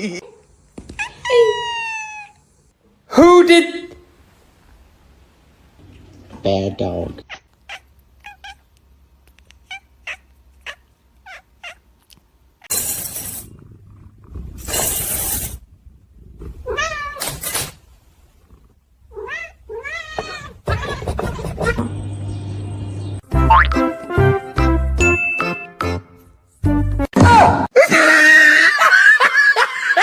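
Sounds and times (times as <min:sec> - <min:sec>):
cats meowing and yowling: 0:19.1 - 0:21.8.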